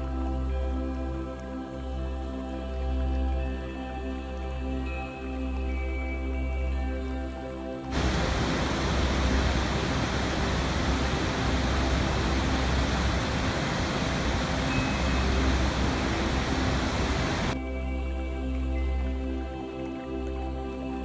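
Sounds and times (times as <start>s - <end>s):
soft music: 0.0s - 21.0s
rushing water: 7.9s - 17.6s.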